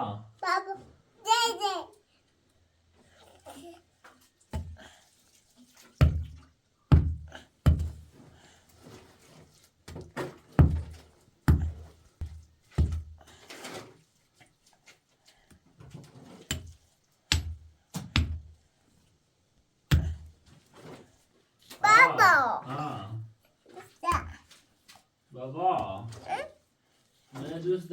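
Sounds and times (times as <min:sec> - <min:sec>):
scraping rustle: 0:08.4 - 0:11.3, 0:13.3 - 0:15.1.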